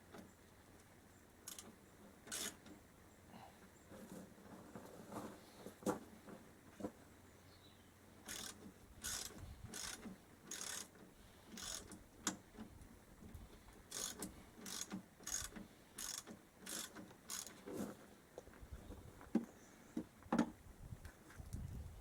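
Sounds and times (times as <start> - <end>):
ratchet wrench clicking: 1.5 - 1.7, 2.3 - 2.6, 8.3 - 10.9, 11.5 - 12.0, 13.9 - 17.5.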